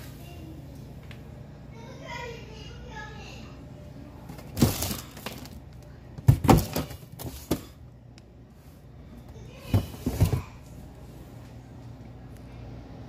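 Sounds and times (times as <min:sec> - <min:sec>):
knocks and clatter in refrigerator: 0:04.3 - 0:05.6, 0:06.2 - 0:07.8, 0:09.6 - 0:10.6.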